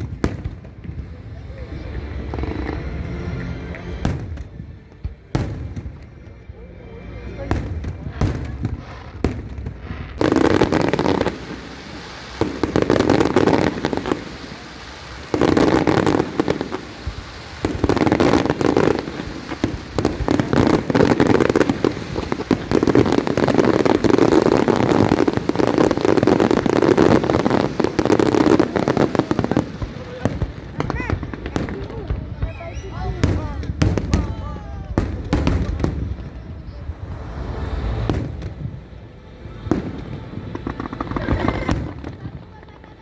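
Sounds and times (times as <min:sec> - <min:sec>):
fireworks bangs and crackling: 0:00.0 - 0:43.0.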